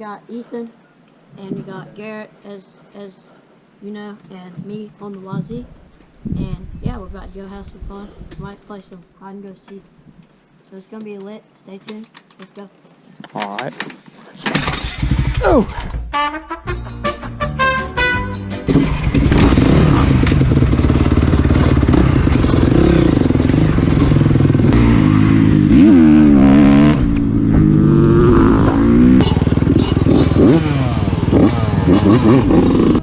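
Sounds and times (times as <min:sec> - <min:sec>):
dirt bike engines revving: 0:18.6 - 0:33.0.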